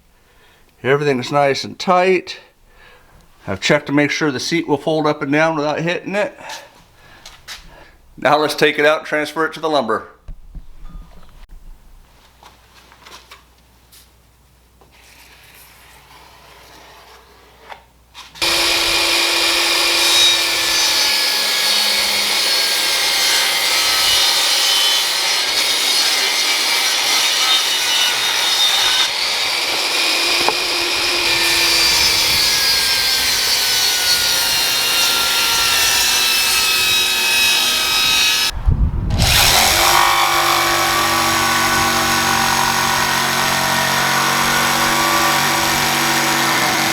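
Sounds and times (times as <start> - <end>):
power saw cutting wood: 18.4 - 38.5, 39.1 - 46.9.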